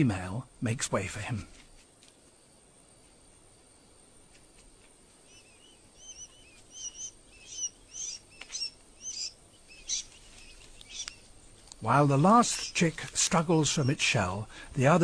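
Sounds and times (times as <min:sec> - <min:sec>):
sandgrouse high chirps: 0:05.2 - 0:11.3, 0:11.9 - 0:14.2.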